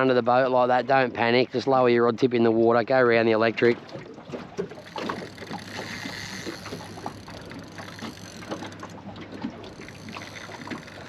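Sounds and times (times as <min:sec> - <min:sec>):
water lapping against boat hull: 0:00.0 - 0:11.0
gear knocking and rattling: 0:04.8 - 0:09.0.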